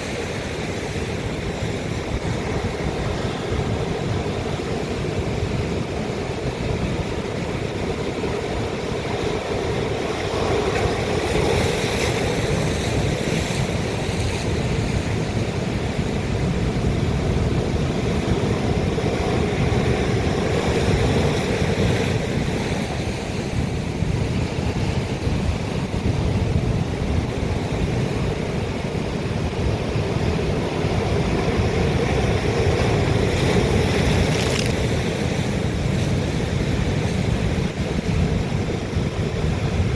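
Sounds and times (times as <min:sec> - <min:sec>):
waves breaking on rock: 0:31.8 - 0:38.0.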